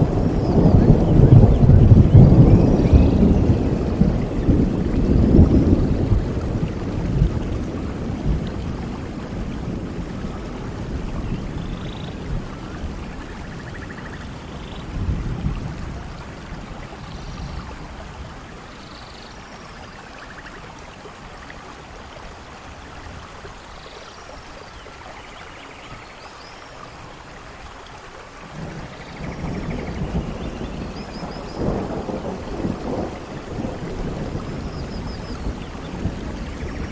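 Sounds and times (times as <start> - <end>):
rolling thunder: 0.0 - 18.7, 28.4 - 36.9
steady rain: 0.0 - 36.9.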